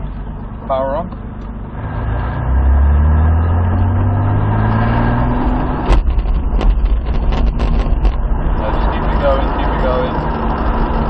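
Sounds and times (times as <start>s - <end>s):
car engine accelerating: 0.0s - 11.0s
sharp knocks: 5.6s - 8.3s.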